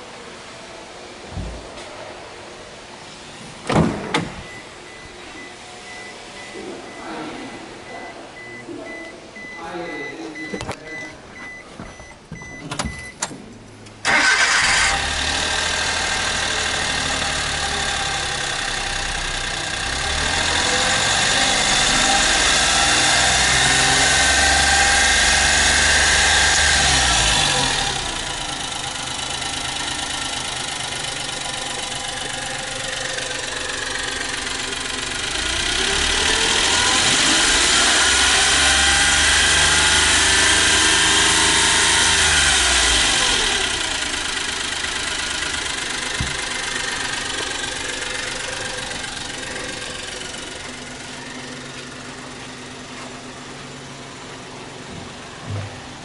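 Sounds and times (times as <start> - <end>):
warning beep: 4.4 - 13.2
car engine starting and revving: 13.9 - 56.0.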